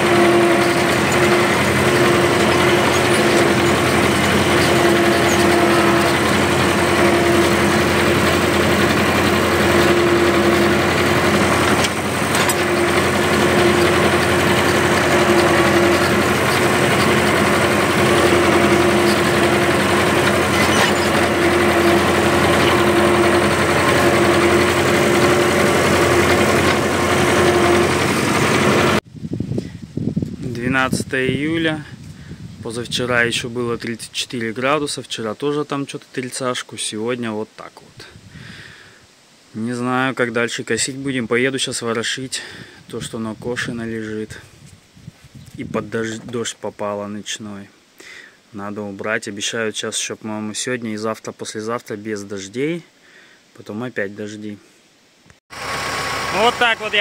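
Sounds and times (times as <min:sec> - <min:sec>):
tractor engine running: 0:00.0 - 0:29.0, 0:55.5 - 0:57.0.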